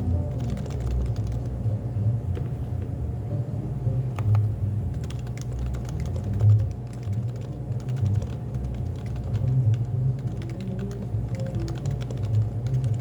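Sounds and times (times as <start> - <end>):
cafe low hum: 0.0 - 13.0
keyboard typing clicks: 0.1 - 1.5, 4.2 - 13.0.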